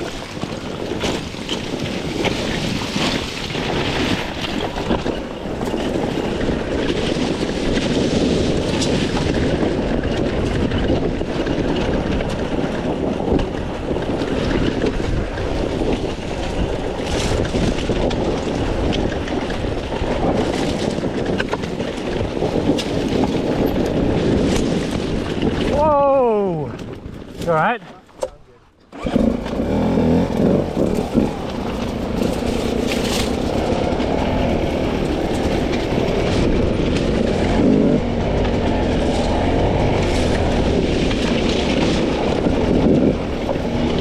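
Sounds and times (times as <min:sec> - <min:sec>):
wind on microphone: 0:00.0 - 0:44.0
dirt bike engine revving: 0:28.9 - 0:44.0.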